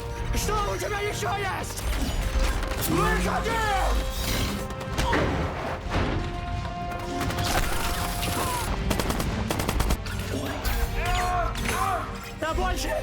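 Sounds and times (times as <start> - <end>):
film music score: 0.0 - 13.0
automatic gunfire: 7.1 - 10.1.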